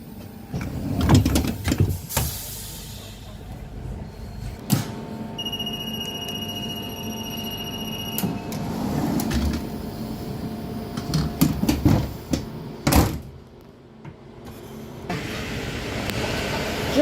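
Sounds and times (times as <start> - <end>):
steady high tone: 5.4 - 8.3.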